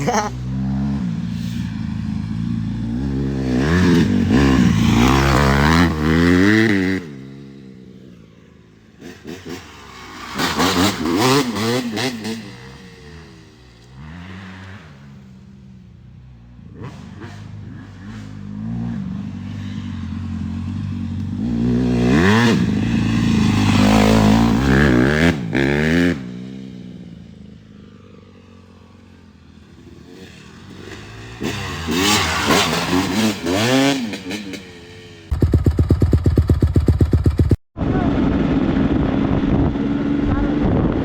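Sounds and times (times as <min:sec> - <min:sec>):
dirt bike engine revving: 0:00.0 - 0:07.5, 0:09.0 - 0:13.4, 0:21.3 - 0:26.7, 0:29.8 - 0:37.6.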